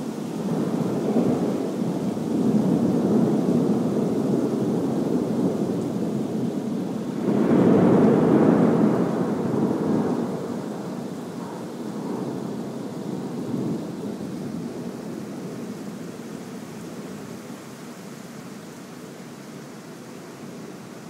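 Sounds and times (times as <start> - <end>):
thunder rumbling: 0.4 - 15.7.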